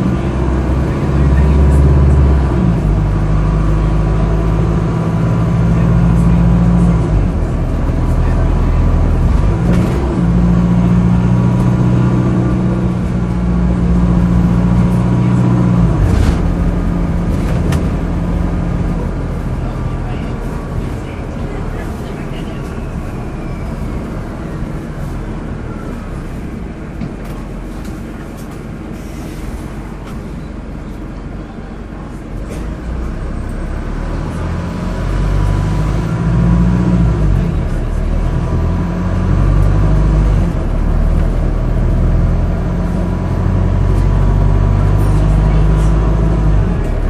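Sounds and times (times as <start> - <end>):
bus diesel engine rumbling: 0.0 - 47.0.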